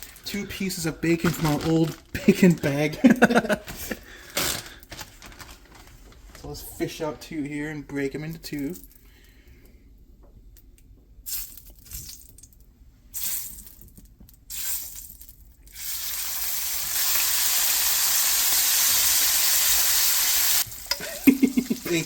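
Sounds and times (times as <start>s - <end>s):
bacon rustling: 0.0s - 7.0s, 13.2s - 22.0s
bacon sizzling in a frying pan: 15.7s - 22.0s.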